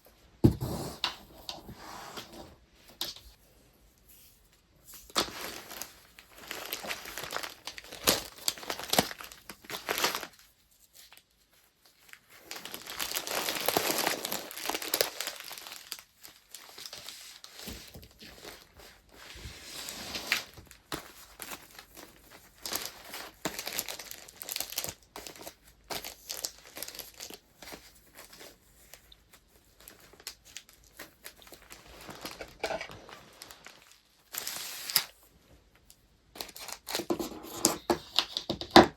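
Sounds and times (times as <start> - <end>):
paper wrapping crinkling: 4.9 - 19.2, 19.8 - 38.5.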